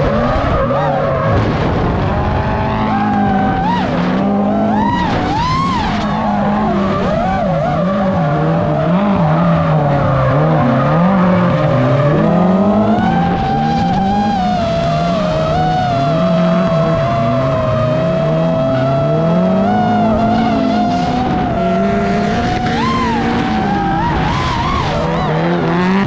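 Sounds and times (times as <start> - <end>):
car engines revving: 0.0 - 26.0
tyre squeal: 18.4 - 26.0.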